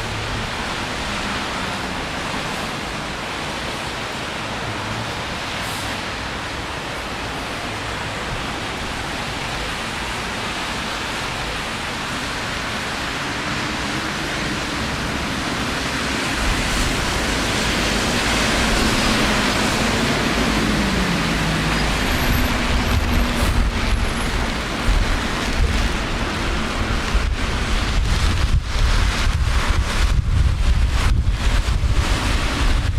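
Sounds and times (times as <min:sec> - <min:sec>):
rain on a wet street: 0:00.0 - 0:32.9
wind rumble on microphone: 0:12.0 - 0:32.9.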